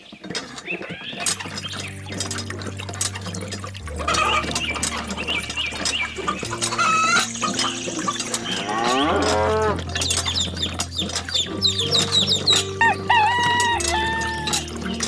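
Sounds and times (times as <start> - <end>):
chickens clucking: 0.0 - 15.0
cow mooing: 3.8 - 15.0.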